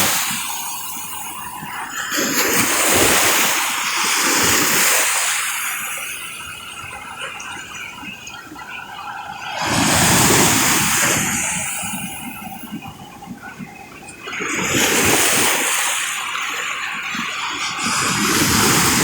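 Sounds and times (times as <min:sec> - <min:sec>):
water splashing: 0:00.0 - 0:19.0
wave breaking and washing in: 0:00.0 - 0:19.0.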